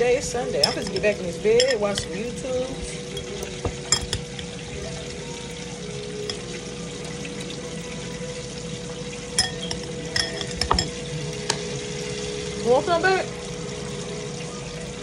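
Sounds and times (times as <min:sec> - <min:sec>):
fish sizzling in hot oil: 0:00.0 - 0:15.0
kitchenware clinks: 0:00.4 - 0:04.6, 0:09.2 - 0:11.6.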